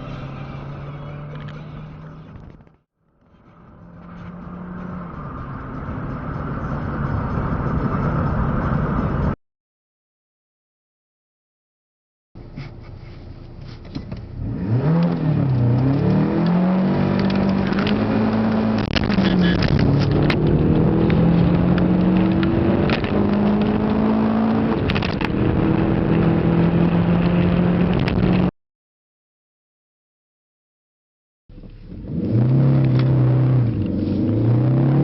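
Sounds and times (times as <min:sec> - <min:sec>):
car engine accelerating hard: 0:00.0 - 0:02.5, 0:03.3 - 0:09.4, 0:14.2 - 0:28.5, 0:31.5 - 0:35.0.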